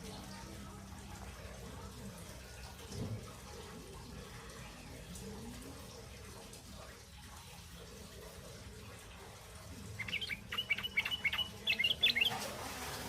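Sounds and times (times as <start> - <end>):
young birds begging chirps: 10.0 - 12.4.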